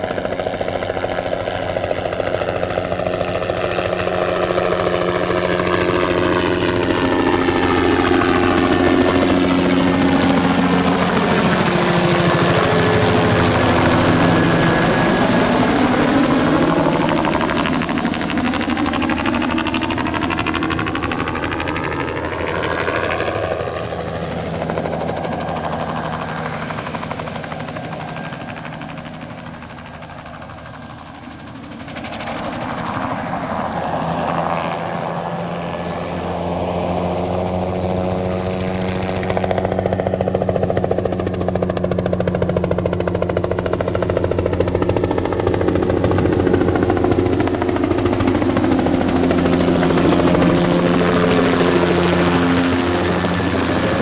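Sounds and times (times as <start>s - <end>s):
helicopter flying low: 0.0s - 54.0s.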